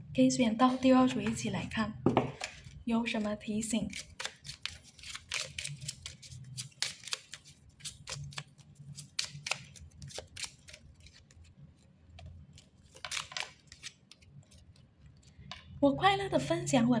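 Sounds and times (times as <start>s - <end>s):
paper rustling: 3.9s - 15.3s
cards flicking: 4.0s - 11.2s.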